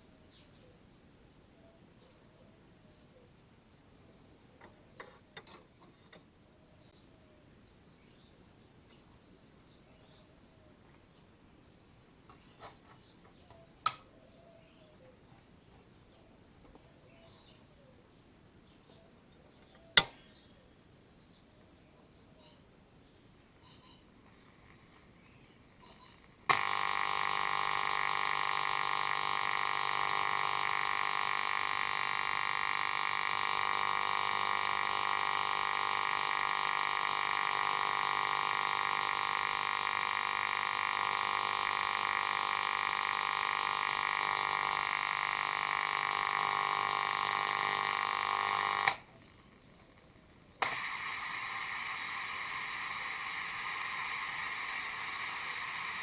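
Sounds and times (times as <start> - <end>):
static hiss: 23.0 - 56.0
radio speaker humming whistle: 25.8 - 49.2, 50.6 - 56.0
radio click: 26.2 - 49.1, 50.6 - 56.0.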